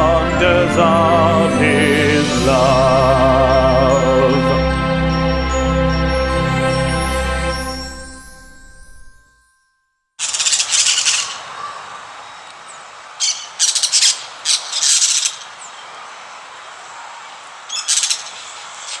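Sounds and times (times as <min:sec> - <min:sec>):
harsh high-pitched bird chirps: 0:10.2 - 0:11.5, 0:17.7 - 0:18.4
outdoor background hiss: 0:10.2 - 0:19.0.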